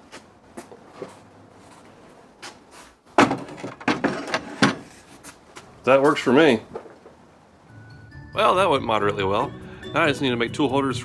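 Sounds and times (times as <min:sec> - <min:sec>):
wood knocking and scraping: 0:03.2 - 0:05.4.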